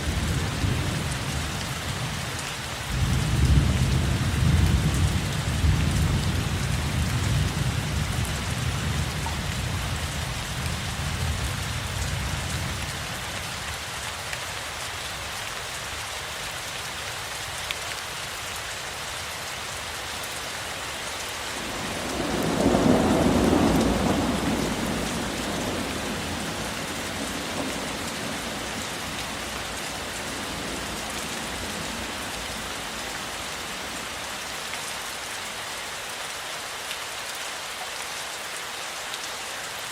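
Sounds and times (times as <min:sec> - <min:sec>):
steady rain: 0:00.0 - 0:39.9
thunder rumbling: 0:21.6 - 0:29.4.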